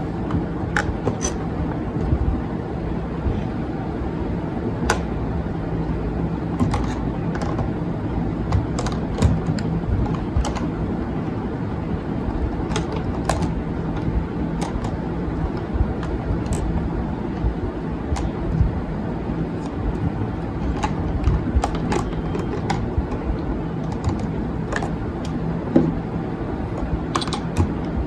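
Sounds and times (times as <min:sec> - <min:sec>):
low background rumble: 0:00.0 - 0:28.0
plastic items clicking and tapping: 0:04.9 - 0:05.2, 0:06.5 - 0:11.4, 0:12.2 - 0:18.8, 0:19.6 - 0:26.0, 0:26.7 - 0:28.0.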